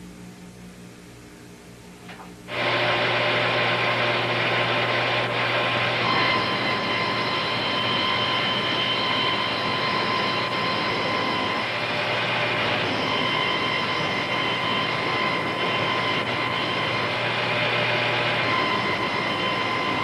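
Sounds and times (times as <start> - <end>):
low electrical hum: 0.0 - 20.0
power saw running: 2.5 - 20.0.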